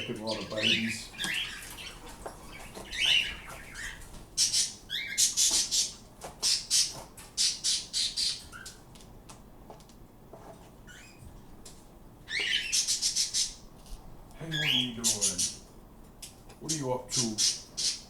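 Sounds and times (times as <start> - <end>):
pet bird squawking: 0.0 - 8.8, 12.3 - 13.6, 14.4 - 15.7, 16.7 - 18.0.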